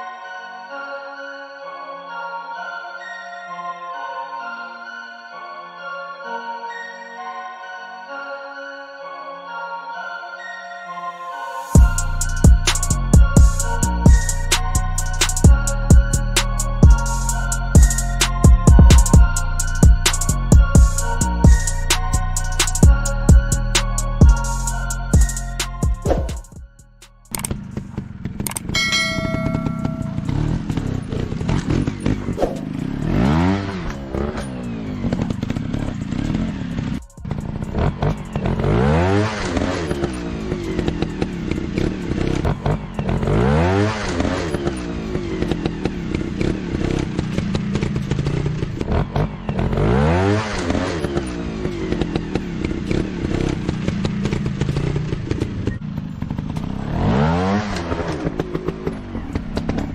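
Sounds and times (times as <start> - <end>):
dirt bike engine revving: 27.3 - 59.9
brief ringing tone: 28.8 - 30.6.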